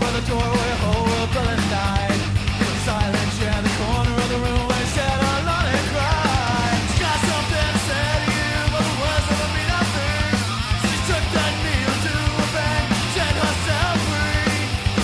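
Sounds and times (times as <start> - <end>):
punk rock music: 0.0 - 15.0.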